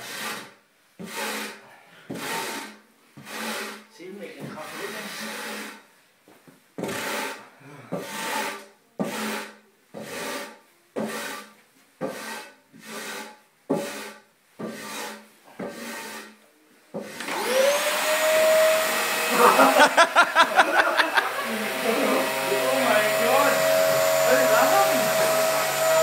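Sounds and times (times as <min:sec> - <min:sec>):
brush sweeping wooden floor: 0:00.0 - 0:05.8, 0:06.8 - 0:07.4, 0:08.0 - 0:26.0
vacuum cleaner motor running: 0:17.2 - 0:26.0.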